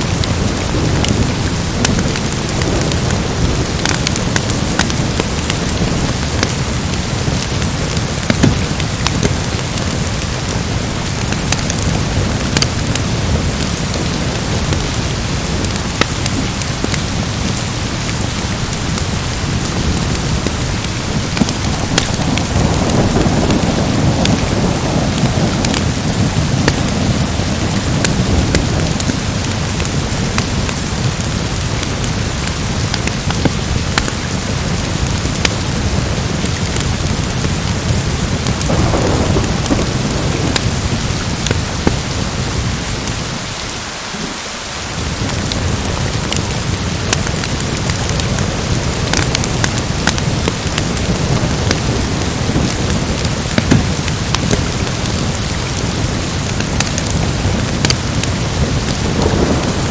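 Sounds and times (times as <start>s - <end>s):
heavy rain: 0.0s - 59.9s
sharp crackles: 0.1s - 43.2s, 45.2s - 59.9s
thunder rolling: 15.4s - 30.4s, 38.4s - 42.8s, 50.0s - 59.9s.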